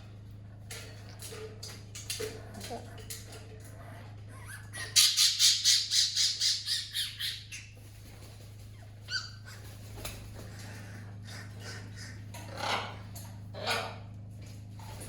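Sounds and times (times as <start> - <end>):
parrot squawking: 4.3 - 7.7, 9.0 - 9.7, 11.2 - 13.0.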